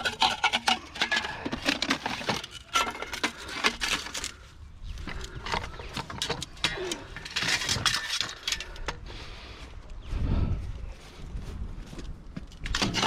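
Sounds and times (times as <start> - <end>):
scrap metal clattering: 0.0 - 4.4, 5.4 - 8.9, 12.7 - 13.0.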